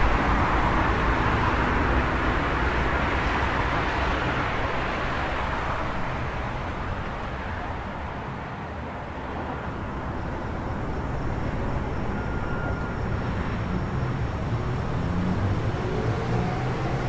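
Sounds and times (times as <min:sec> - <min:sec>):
low traffic rumble: 0:00.0 - 0:17.0
vehicle passing: 0:13.3 - 0:17.0.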